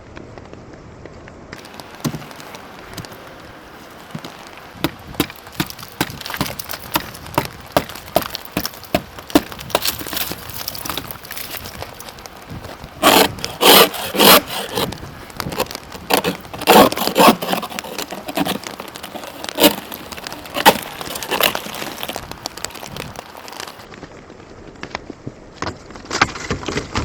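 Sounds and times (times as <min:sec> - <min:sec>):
ice scraper scraping ice: 0:04.1 - 0:23.8.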